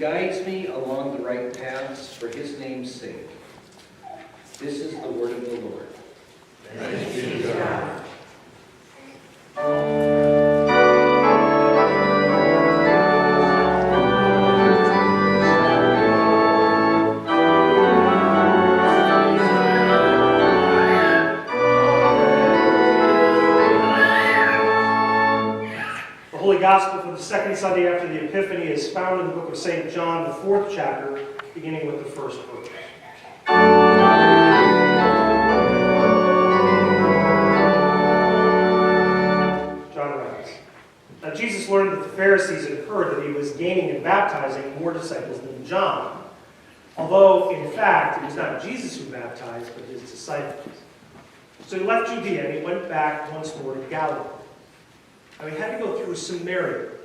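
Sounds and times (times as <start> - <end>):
church organ playing chords: 9.6 - 25.8, 33.4 - 40.0.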